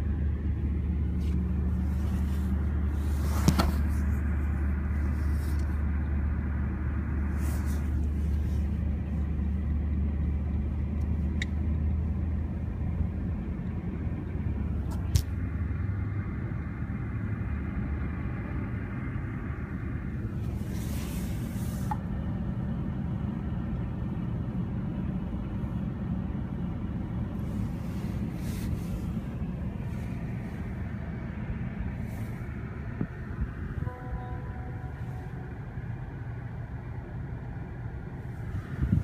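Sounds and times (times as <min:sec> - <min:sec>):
train rumbling past: 0:27.6 - 0:39.0
faint short tone: 0:33.8 - 0:35.4.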